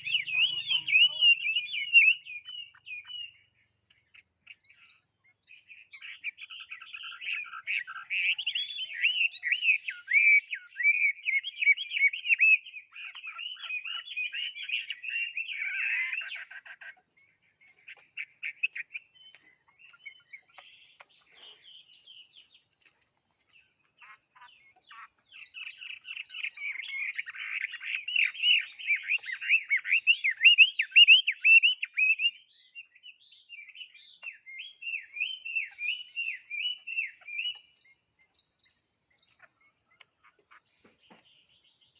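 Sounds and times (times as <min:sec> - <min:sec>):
songbird warbling: 0:00.0 - 0:41.9.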